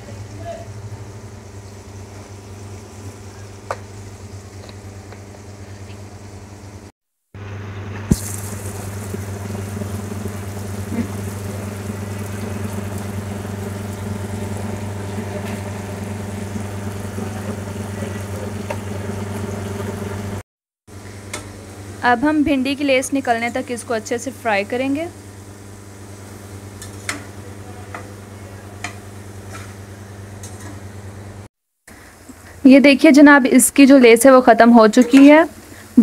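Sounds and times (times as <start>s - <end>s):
okra sizzling in oil: 1.1s - 20.4s, 22.8s - 30.9s, 32.0s - 36.0s
low hum: 7.4s - 20.4s.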